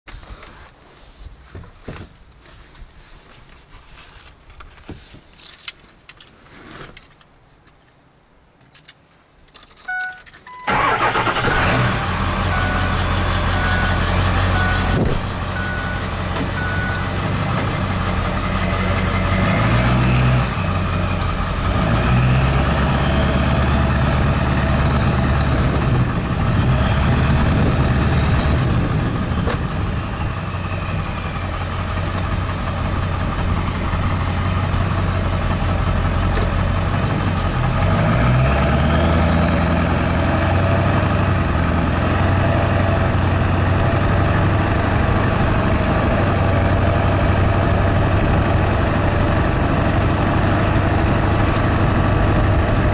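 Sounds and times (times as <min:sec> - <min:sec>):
loud diesel engine revving: 0:10.7 - 0:29.4, 0:30.2 - 0:52.9.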